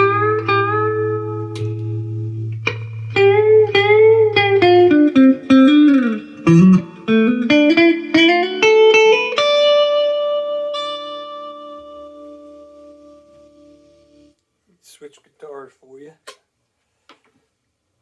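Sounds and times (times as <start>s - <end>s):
electric guitar lead with string bends: 0.0s - 14.4s.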